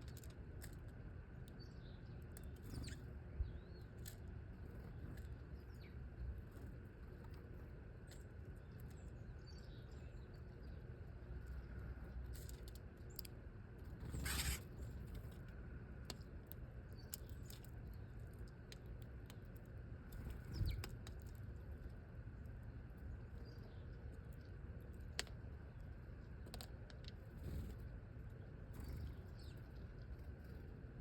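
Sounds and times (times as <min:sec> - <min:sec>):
small birds chirping: 0:00.0 - 0:15.4, 0:16.1 - 0:31.0
wings fluttering: 0:13.8 - 0:15.5
light ticks and pattering: 0:14.9 - 0:30.4.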